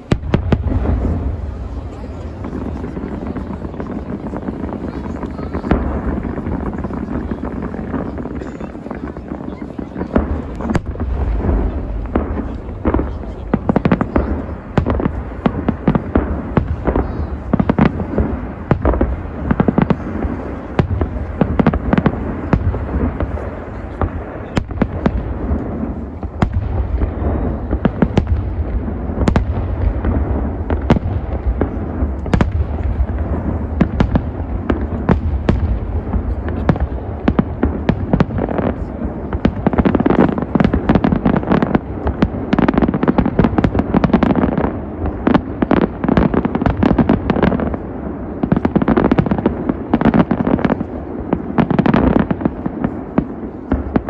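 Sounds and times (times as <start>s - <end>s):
low rumble: 10.4s - 16.9s.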